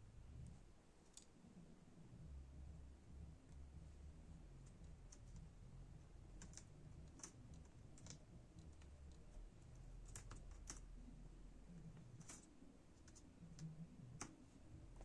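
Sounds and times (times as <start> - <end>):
low steady hum: 0.0 - 15.0
laptop keyboard clicks: 6.4 - 9.2, 10.1 - 10.9.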